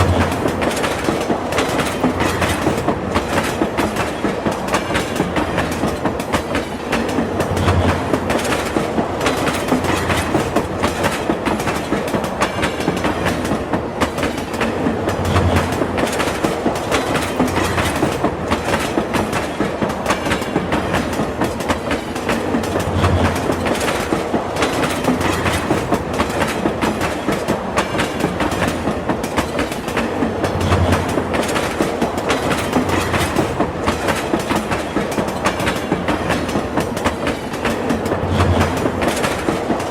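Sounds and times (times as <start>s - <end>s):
train rumbling on rails: 0.0s - 39.9s
wheels clacking over rail joints: 0.0s - 39.9s.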